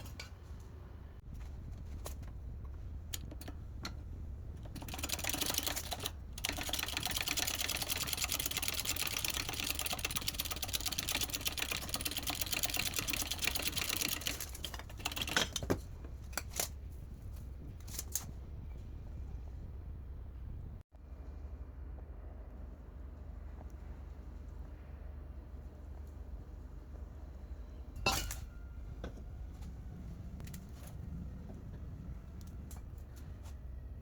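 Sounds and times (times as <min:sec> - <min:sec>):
scattered clicks: 0:04.6 - 0:15.6.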